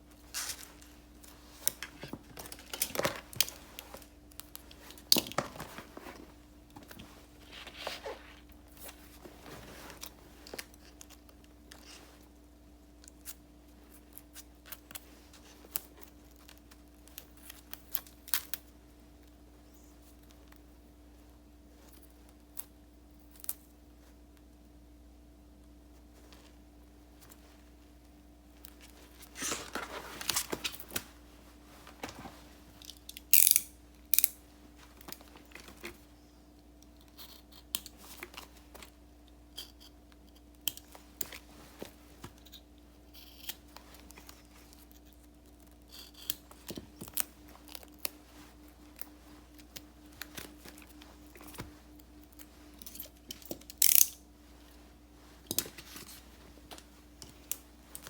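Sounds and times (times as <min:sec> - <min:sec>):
paper rustling: 0:00.1 - 0:11.2, 0:28.7 - 0:32.8.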